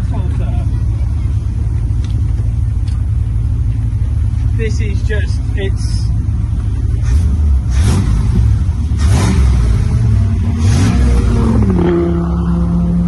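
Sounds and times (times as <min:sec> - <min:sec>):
car engine idling: 0:00.0 - 0:13.0
car engine revving: 0:00.1 - 0:13.0.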